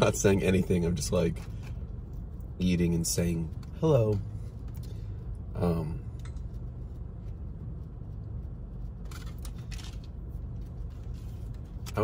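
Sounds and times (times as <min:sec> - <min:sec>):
low hum in car cabin: 0:00.0 - 0:12.0.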